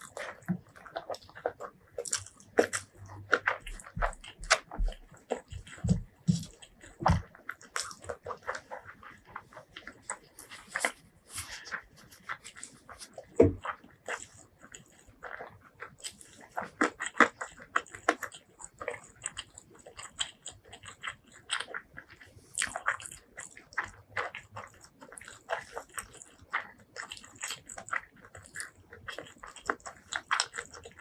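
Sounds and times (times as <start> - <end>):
mouth chewing food: 0.0 - 31.0.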